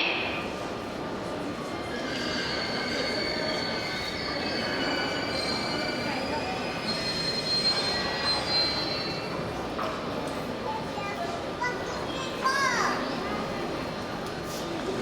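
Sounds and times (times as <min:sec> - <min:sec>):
train wheels squealing on rails: 0:00.0 - 0:10.6.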